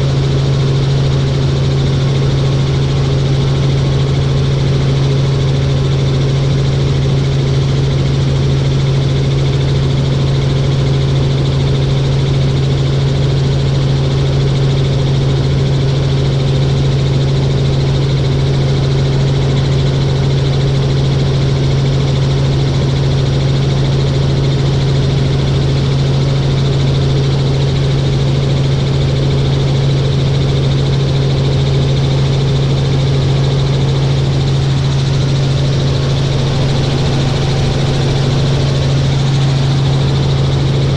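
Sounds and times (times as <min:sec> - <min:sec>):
helicopter engine and rotors droning: 0:28.7 - 0:40.9.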